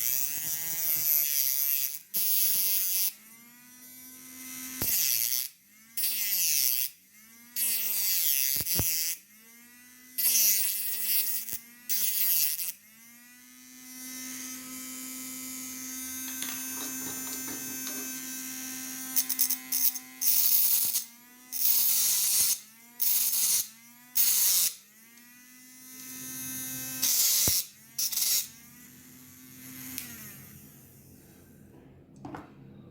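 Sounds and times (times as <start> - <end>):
mini grinder whining: 0.0 - 31.6.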